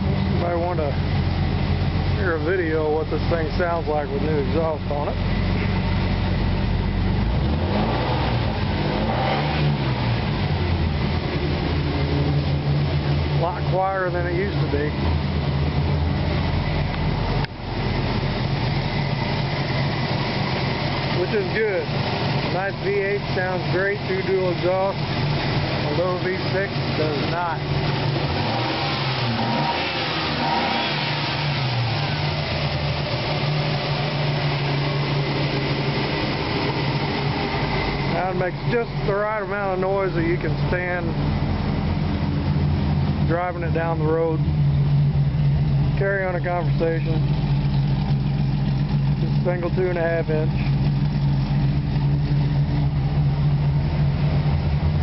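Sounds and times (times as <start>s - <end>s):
car engine exhaust note: 0.0s - 55.0s.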